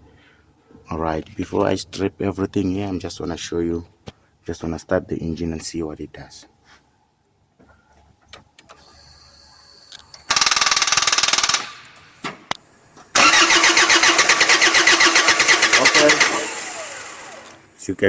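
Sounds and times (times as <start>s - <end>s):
diesel engine cranking: 13.1s - 17.7s.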